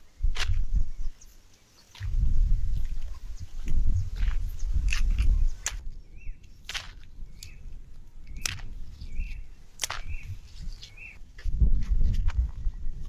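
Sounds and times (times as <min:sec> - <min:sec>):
small bird chirping: 0:00.2 - 0:11.2
sharp snaps or clicks: 0:04.8 - 0:05.8, 0:08.4 - 0:08.7, 0:09.8 - 0:10.2.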